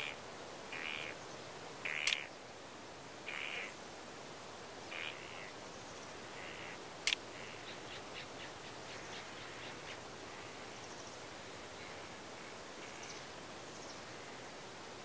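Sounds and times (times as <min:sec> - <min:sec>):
harsh bird calls: 0:00.0 - 0:01.2, 0:03.3 - 0:03.8, 0:04.9 - 0:05.6
steady outdoor hiss: 0:00.0 - 0:15.0
sharp click: 0:02.0 - 0:02.2.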